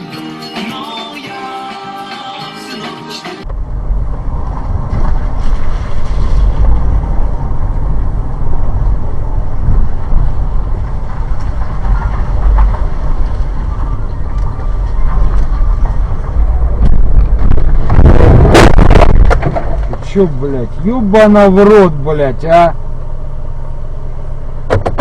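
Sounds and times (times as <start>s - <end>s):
car road and engine rumble: 3.4s - 25.0s
wind buffeting microphone: 3.5s - 20.1s.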